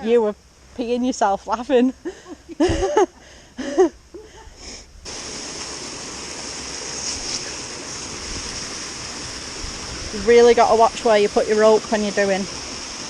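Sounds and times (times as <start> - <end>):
water rushing: 5.0 - 13.0.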